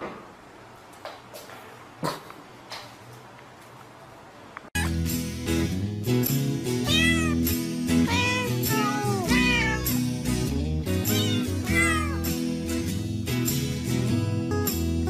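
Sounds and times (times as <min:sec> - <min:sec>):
background music: 0:04.8 - 0:15.0
cat meowing: 0:06.8 - 0:10.1, 0:11.1 - 0:12.3.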